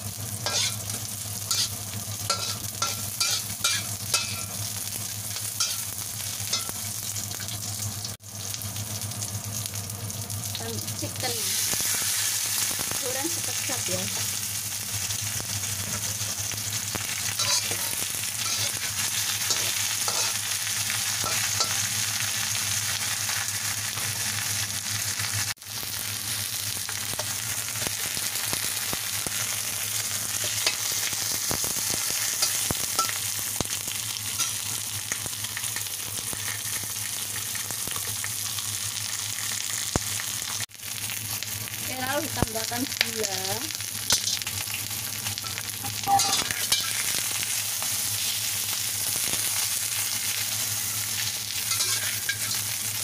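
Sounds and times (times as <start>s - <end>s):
chicken sizzling in oil: 0.0s - 53.0s
small crackles: 10.4s - 14.1s, 26.8s - 38.4s.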